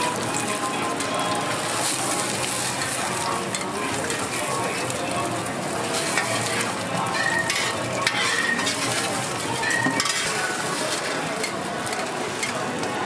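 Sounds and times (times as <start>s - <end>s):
egg sizzling on a griddle: 0.0s - 13.0s
metal spatula clicks and scrapes: 1.8s - 4.5s, 5.9s - 12.9s.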